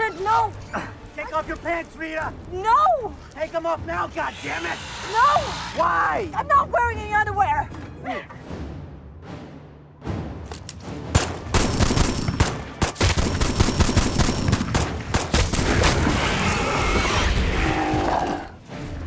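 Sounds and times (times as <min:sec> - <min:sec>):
background music: 0:00.0 - 0:19.0
rapid gunfire: 0:11.1 - 0:16.1.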